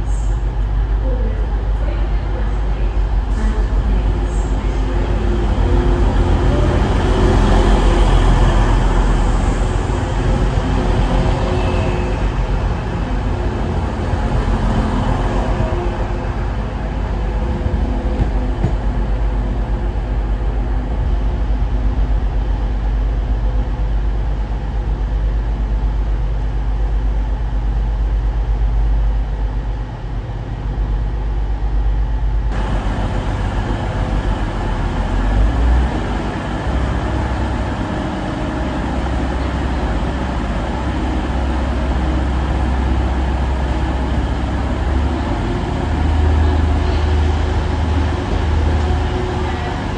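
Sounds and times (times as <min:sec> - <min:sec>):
diesel train engine rumble: 0:00.0 - 0:30.1, 0:31.2 - 0:49.9
faint steady hum: 0:32.5 - 0:45.8.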